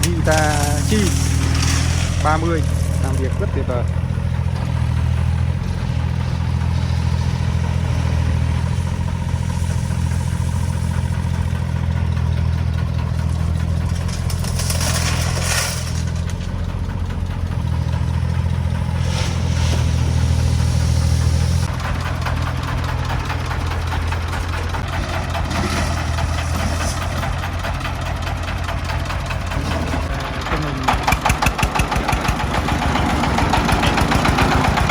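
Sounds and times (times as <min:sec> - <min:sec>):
diesel engine running: 0:00.0 - 0:34.9
rattling noise: 0:00.0 - 0:34.9.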